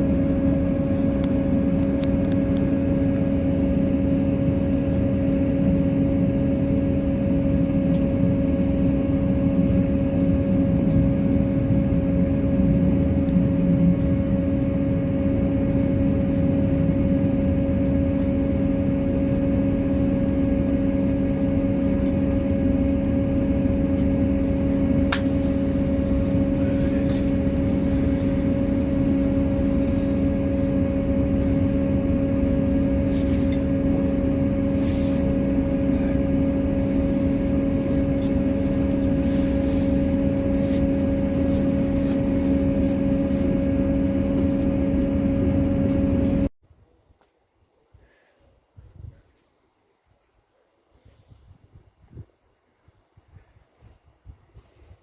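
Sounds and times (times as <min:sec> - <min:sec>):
train running drone: 0:00.0 - 0:46.5.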